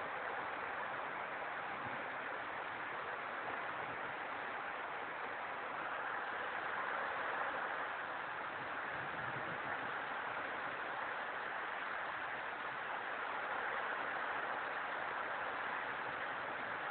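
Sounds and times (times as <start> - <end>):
heavy rain pouring: 0.0 - 16.9.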